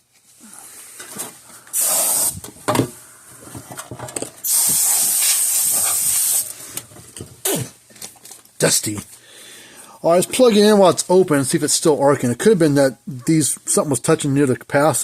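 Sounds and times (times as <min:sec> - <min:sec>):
compressed air blasts: 0:01.7 - 0:02.5, 0:04.4 - 0:06.6, 0:07.4 - 0:07.8
small knocks and clatters: 0:02.6 - 0:04.4.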